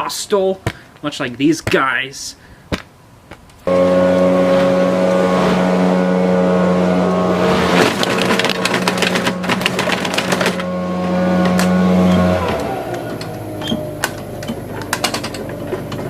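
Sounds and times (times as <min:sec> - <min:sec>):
lawnmower engine running: 0:03.7 - 0:16.0.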